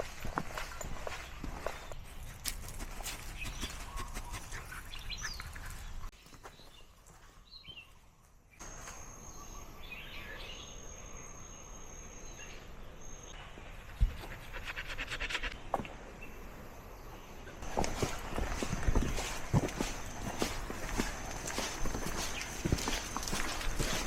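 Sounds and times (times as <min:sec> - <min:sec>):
footsteps: 0:00.0 - 0:04.4, 0:17.6 - 0:24.0.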